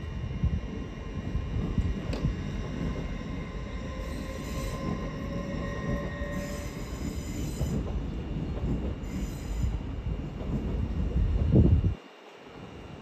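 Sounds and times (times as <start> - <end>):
train wheels rumbling: 0.0 - 11.9
metallic wheel squeal: 3.7 - 7.8.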